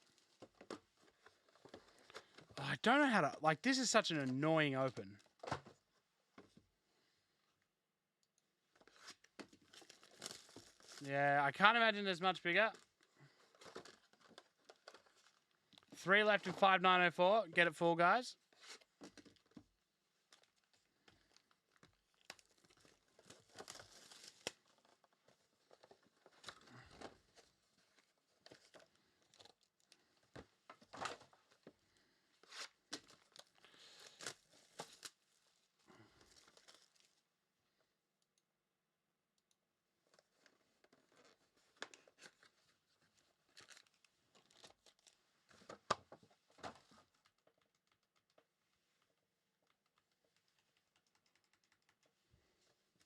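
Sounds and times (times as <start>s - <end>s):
packaging tearing and crinkling: 8.9s - 11.0s, 22.2s - 25.0s, 43.5s - 45.2s.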